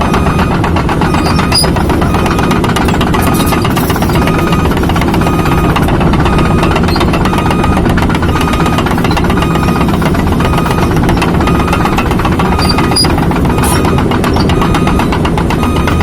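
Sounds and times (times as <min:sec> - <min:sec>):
diesel engine under load: 0:00.0 - 0:16.0
short high beeps: 0:01.0 - 0:16.0.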